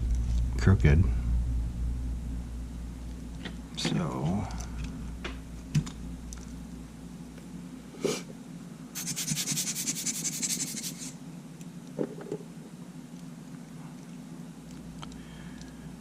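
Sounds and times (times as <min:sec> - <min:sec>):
steady low hum: 0:00.0 - 0:16.0
fast scratching strokes: 0:09.0 - 0:11.2.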